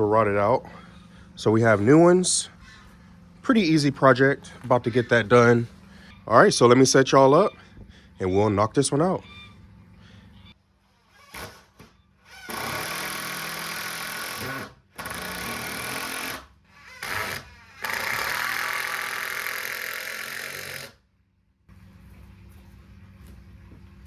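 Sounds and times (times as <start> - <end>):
power screwdriver driving screws: 12.3 - 21.0.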